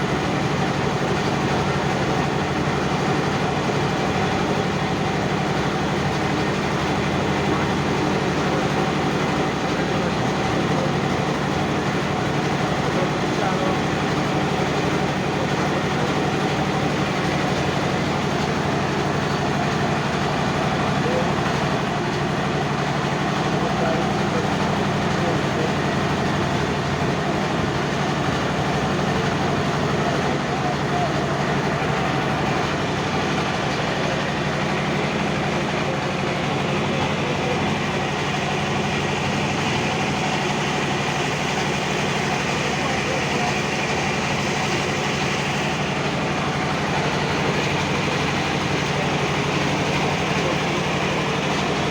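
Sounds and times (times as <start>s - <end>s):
motor boat engine droning: 0.0s - 51.9s.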